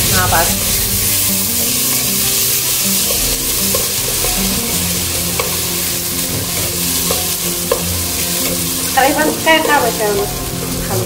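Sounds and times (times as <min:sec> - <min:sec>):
background music: 0:00.0 - 0:11.0
rice frying in oil sizzling: 0:00.0 - 0:11.0
wooden spoon knocking pot: 0:02.7 - 0:05.6, 0:06.3 - 0:10.0.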